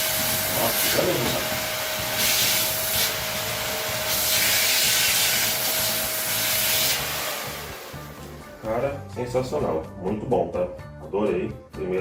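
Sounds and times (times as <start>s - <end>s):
vacuum cleaner running: 0.0s - 8.7s.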